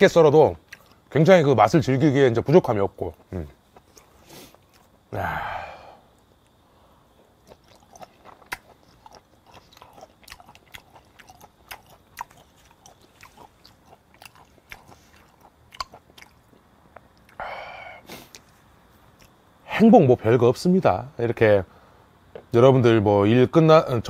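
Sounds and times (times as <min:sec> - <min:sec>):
person chewing with wet mouth clicks: 0:07.4 - 0:17.4.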